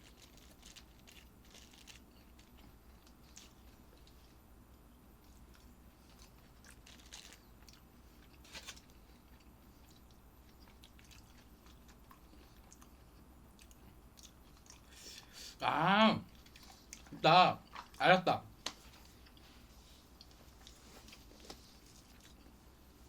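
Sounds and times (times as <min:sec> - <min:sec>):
person chewing: 0:05.2 - 0:15.4, 0:16.3 - 0:18.0.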